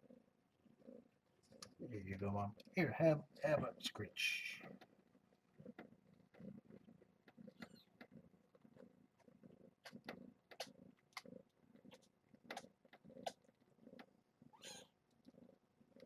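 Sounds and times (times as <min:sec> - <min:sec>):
cat purring: 0:00.0 - 0:16.0
cat squeak: 0:14.5 - 0:14.9.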